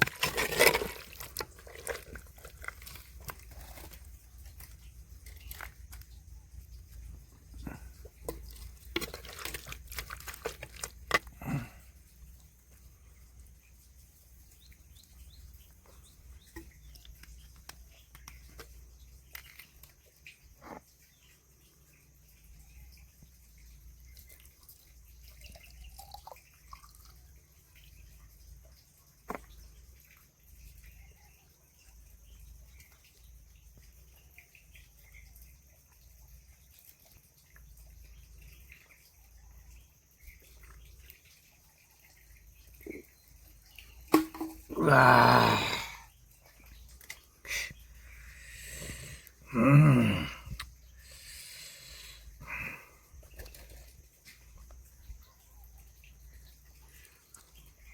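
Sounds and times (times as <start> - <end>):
faint bird chirps: 11.4 - 44.1.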